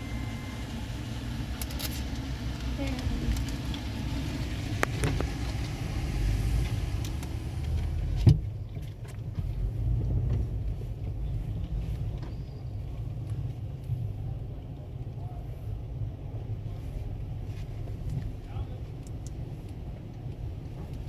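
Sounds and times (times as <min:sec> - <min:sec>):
car wash rumble: 0:00.0 - 0:21.0.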